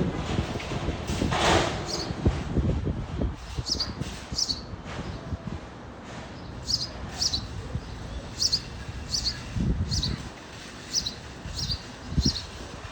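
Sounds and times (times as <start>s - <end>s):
sparrow chirping: 1.8s - 2.2s, 3.4s - 5.2s, 6.4s - 12.6s.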